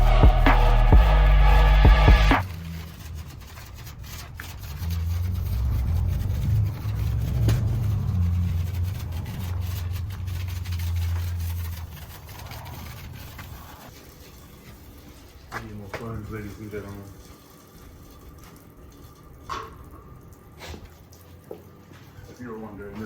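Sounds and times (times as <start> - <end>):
car engine rumbling: 0.0 - 2.9, 4.6 - 12.3.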